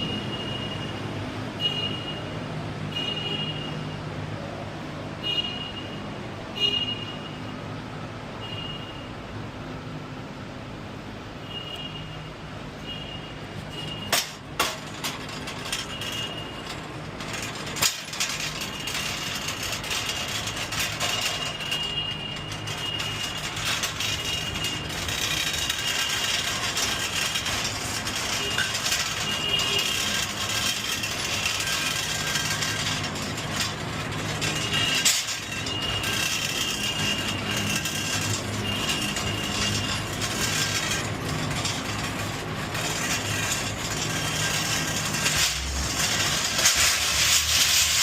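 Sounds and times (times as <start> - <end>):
stoves rattling and clattering: 13.5 - 48.0.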